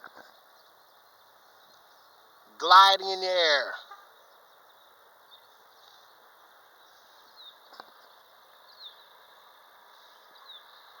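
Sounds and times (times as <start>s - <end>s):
small bird chirping: 3.8s - 11.0s.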